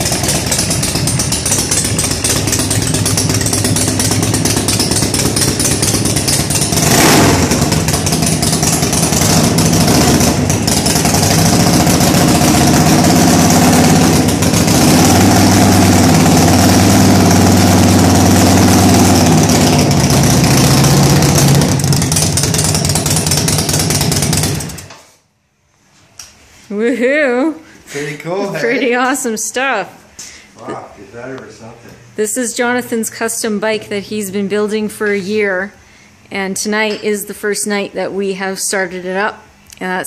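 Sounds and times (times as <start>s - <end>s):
motorcycle engine revving: 0.0s - 25.1s.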